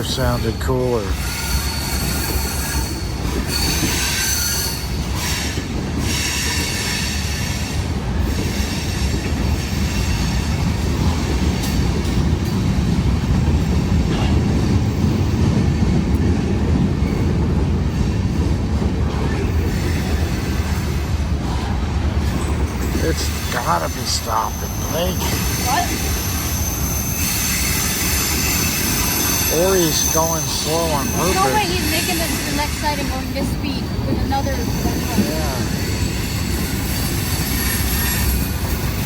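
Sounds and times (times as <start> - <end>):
train wheels rumbling on rail: 0.0 - 39.0
high-pitched wheel squeal: 0.4 - 7.8, 22.8 - 33.2, 34.3 - 39.0.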